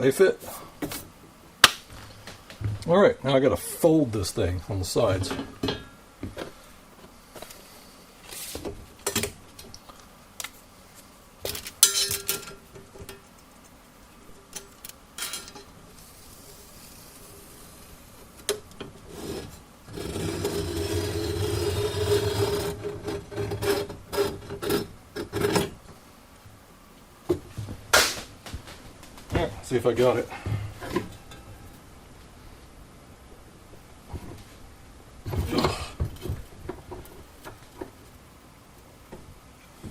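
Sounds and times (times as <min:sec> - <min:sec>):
rasping metal-on-metal rubbing: 0:19.0 - 0:25.8.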